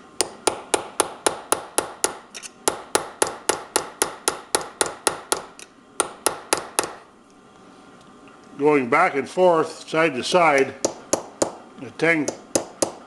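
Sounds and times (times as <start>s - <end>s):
hammer tapping metal punch: 0.2s - 7.0s, 10.6s - 11.6s, 12.2s - 13.0s.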